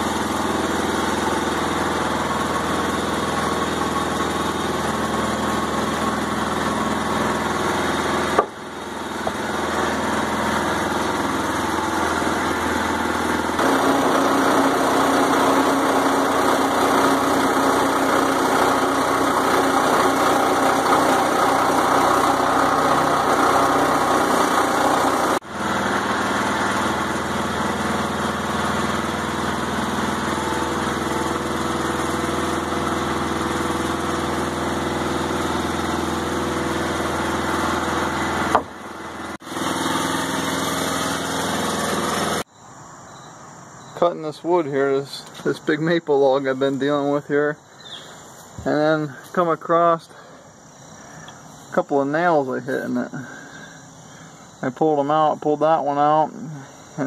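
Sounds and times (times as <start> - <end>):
sawmill engine running: 0.0 - 42.5.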